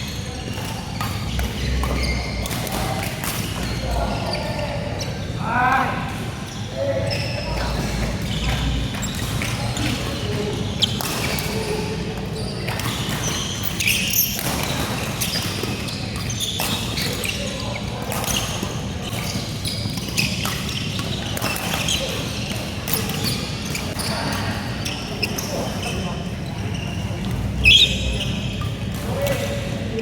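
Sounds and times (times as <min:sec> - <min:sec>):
hum and chatter of a hall: 0:00.0 - 0:30.0
rackets hitting shuttlecock: 0:00.4 - 0:04.0.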